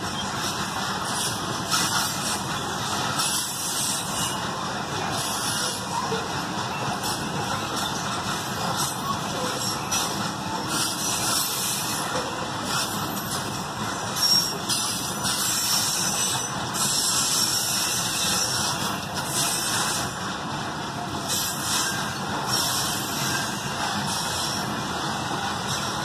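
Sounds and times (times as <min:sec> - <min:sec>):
freight train wheels rolling on rails: 0:00.0 - 0:26.0
high hissing wheel squeal: 0:14.2 - 0:18.7, 0:21.3 - 0:24.7.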